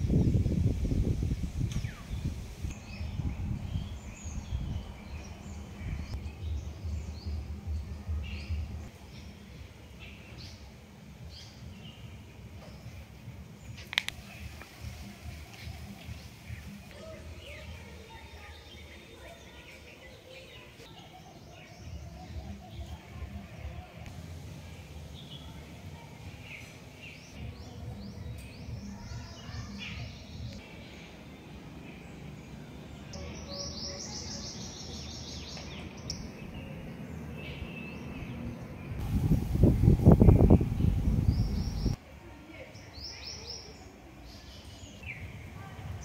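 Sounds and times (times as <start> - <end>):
birds chirping: 0.0 - 42.0
outdoor background noise: 0.0 - 46.0
loud low noise: 24.0 - 26.7, 36.4 - 42.0
low rumble: 38.4 - 42.0.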